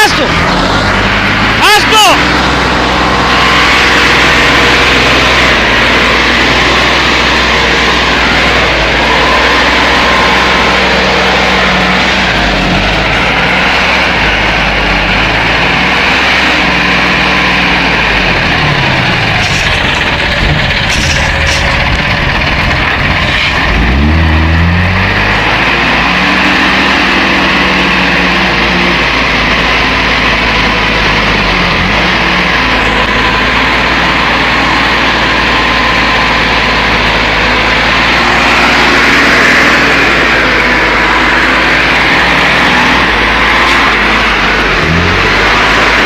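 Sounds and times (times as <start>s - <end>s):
truck engine revving: 0.0s - 46.0s.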